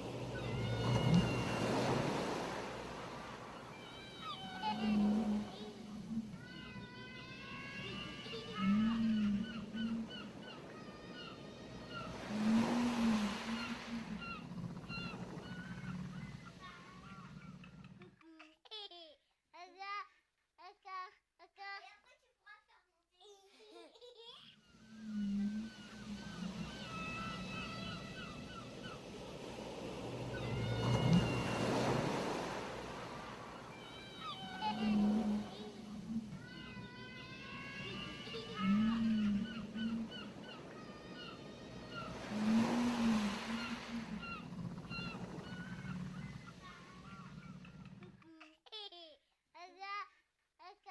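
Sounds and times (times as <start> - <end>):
wave washing up shore: 0.0 - 17.4, 24.8 - 47.6
steady surf: 0.0 - 17.7, 24.7 - 47.9
birds chirping: 0.0 - 18.0, 24.6 - 48.1
low whale calls: 0.0 - 18.1, 24.6 - 48.2.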